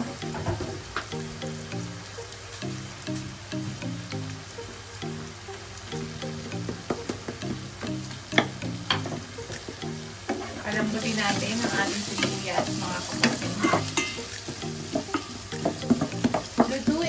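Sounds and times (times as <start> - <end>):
food sizzling in a pan: 0.0 - 17.0
wooden spatula scraping and tapping: 6.6 - 17.0.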